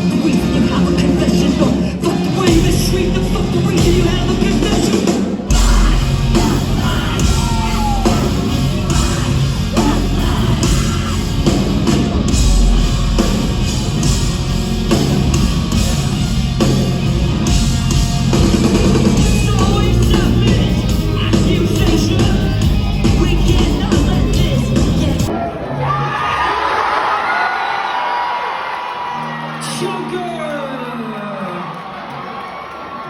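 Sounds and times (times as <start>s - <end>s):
person singing: 0.0s - 11.9s, 18.6s - 25.4s
drums: 0.0s - 27.2s
heavy guitars: 0.0s - 27.2s.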